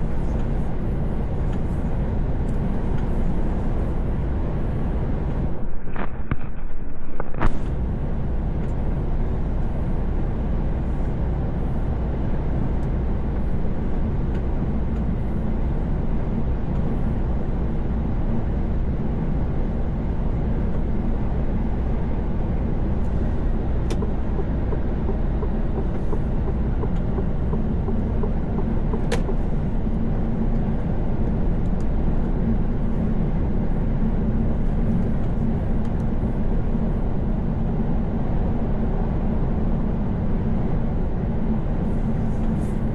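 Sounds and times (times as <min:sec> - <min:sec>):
truck engine and tyres rumbling: 0:00.0 - 0:42.9.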